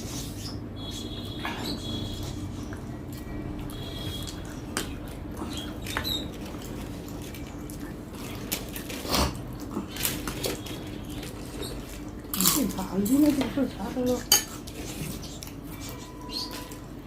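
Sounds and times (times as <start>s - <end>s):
steady low hum: 0.0s - 17.0s
chewing and mouth noises: 1.2s - 16.8s.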